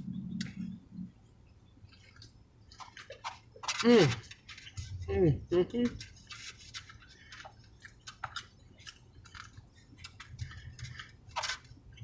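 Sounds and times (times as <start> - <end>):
person chewing food: 6.1 - 12.0.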